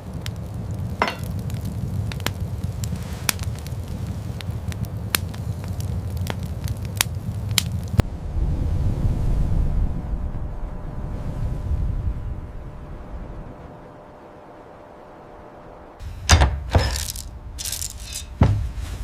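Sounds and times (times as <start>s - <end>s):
wood fire crackling: 0.0s - 8.0s, 15.9s - 19.0s
low rumble: 0.0s - 16.3s.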